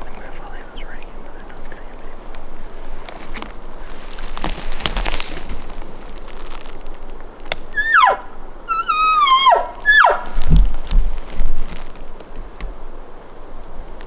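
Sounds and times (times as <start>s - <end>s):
rustling: 0.0s - 14.0s
elk mewing calls: 7.7s - 10.8s.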